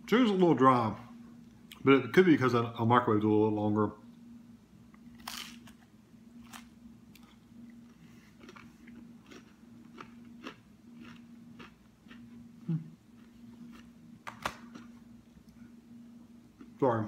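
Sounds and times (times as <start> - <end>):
steady low hum: 0.0 - 17.0
crunching crispy flatbread: 5.2 - 5.8.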